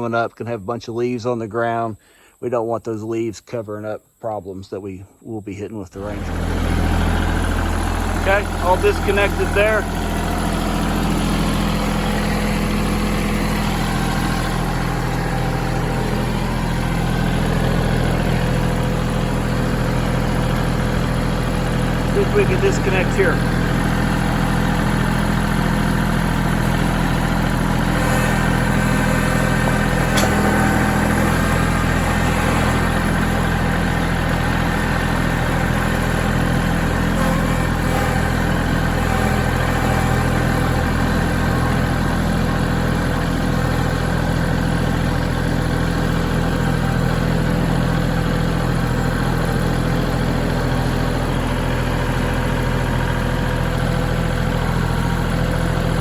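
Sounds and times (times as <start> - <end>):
tractor diesel engine idling: 5.5 - 56.0.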